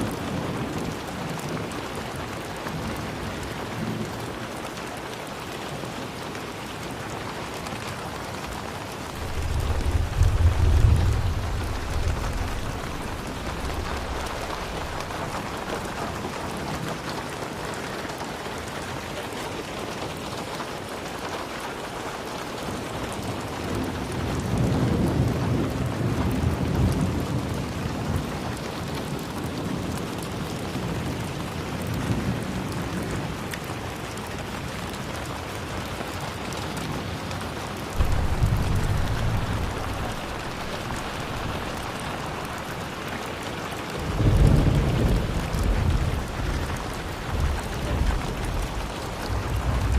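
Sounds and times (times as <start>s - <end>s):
steady rain: 0.0s - 49.9s
low thunder rumble: 9.1s - 16.7s, 37.9s - 49.9s.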